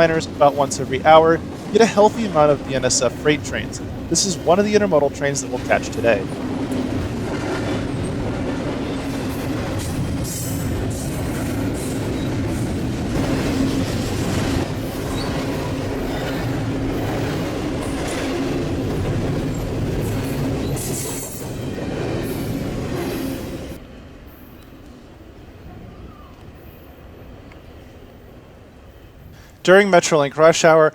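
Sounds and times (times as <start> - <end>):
freight train rumble: 0.0 - 29.6.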